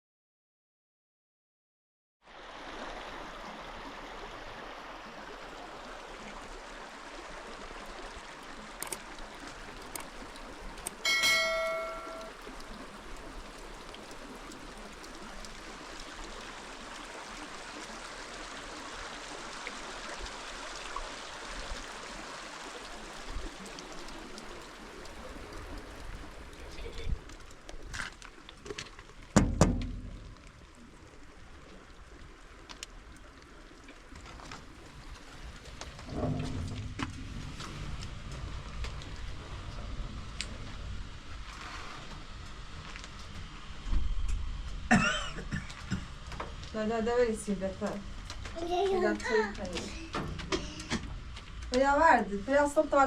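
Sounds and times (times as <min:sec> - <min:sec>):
steady rain: 0:02.3 - 0:53.0
metallic ringing strike: 0:11.1 - 0:12.4.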